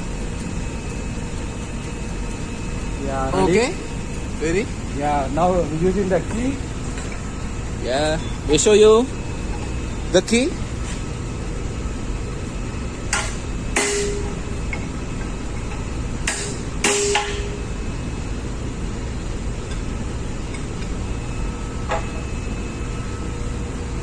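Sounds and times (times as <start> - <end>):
engine room machinery hum: 0.0 - 24.0
hammer blows on metal spanner: 13.1 - 14.9, 15.6 - 17.6.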